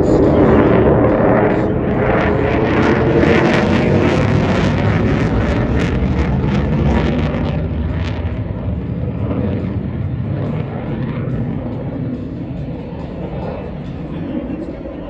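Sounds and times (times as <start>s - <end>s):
jet engine in flight: 0.0s - 15.0s.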